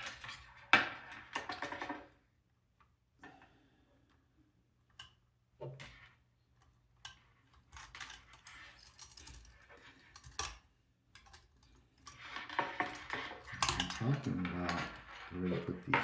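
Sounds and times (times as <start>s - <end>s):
rattling and rustling: 12.1s - 16.0s.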